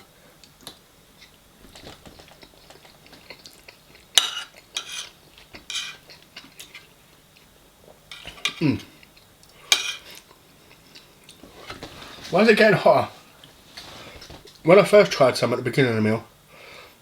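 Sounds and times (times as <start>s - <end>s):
cutlery scraping a plate: 4.2s - 6.9s, 8.1s - 8.6s, 9.7s - 10.2s.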